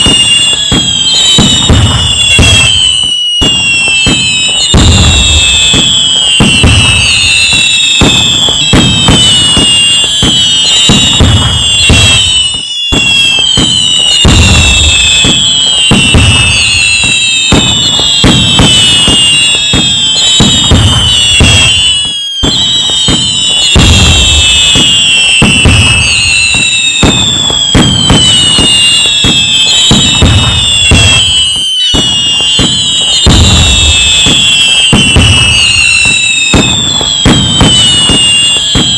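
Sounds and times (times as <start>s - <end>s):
fireworks bangs and crackles: 0.0s - 38.9s
whistling rockets: 0.0s - 38.9s.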